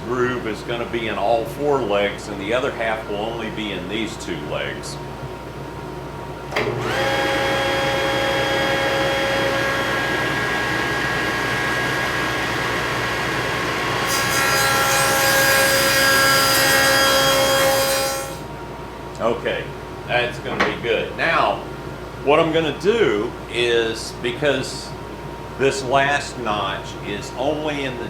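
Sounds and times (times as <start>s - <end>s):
saw cutting wood: 6.6s - 18.4s
table saw running: 6.6s - 18.4s.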